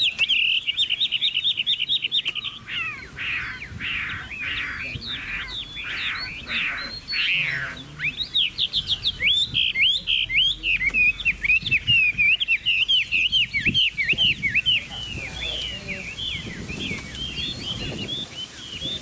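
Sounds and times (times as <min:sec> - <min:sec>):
bird singing: 0:00.0 - 0:19.0.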